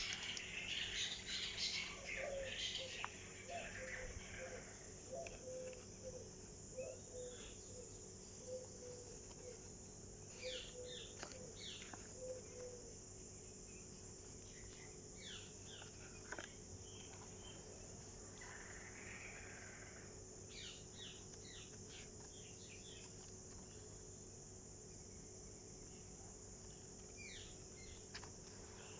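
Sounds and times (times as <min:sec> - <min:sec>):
birds calling: 0:00.0 - 0:09.7, 0:10.3 - 0:23.9.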